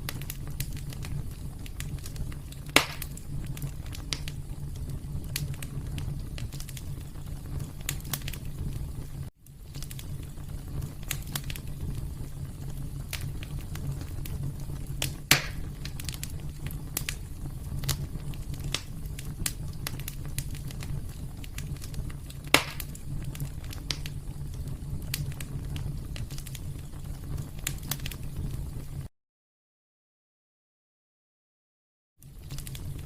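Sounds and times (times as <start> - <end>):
fire snapping: 0.0 - 29.1, 32.2 - 33.0
wood fire crackling: 0.0 - 29.1, 32.2 - 33.0.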